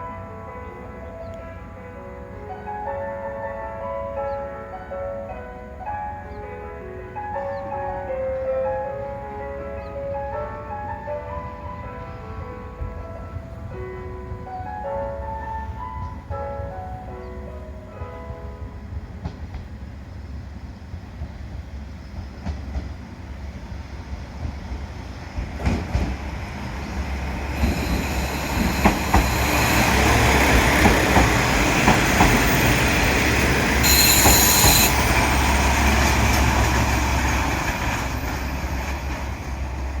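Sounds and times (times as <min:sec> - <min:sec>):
diesel railcar engine rumble: 0:09.0 - 0:40.0
train wheels clicking over rail joints: 0:22.0 - 0:23.1, 0:25.3 - 0:40.0
brake squeal: 0:31.8 - 0:36.2.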